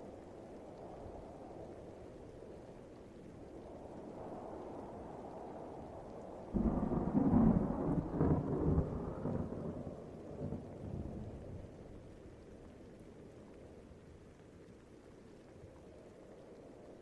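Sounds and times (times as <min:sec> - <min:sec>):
steady rain: 0:00.0 - 0:17.0
rolling thunder: 0:06.6 - 0:11.8.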